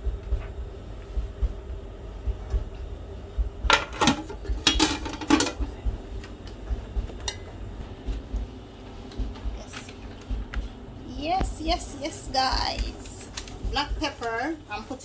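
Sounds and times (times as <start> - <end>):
dishes and utensils clinking: 3.7 - 5.7.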